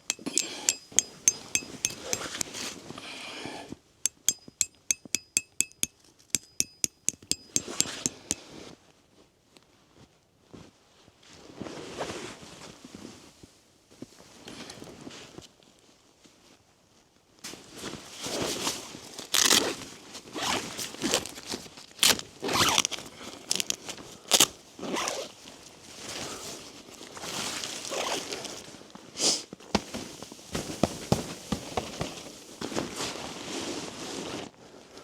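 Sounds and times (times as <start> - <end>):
sharp knocks: 4.1 - 8.4.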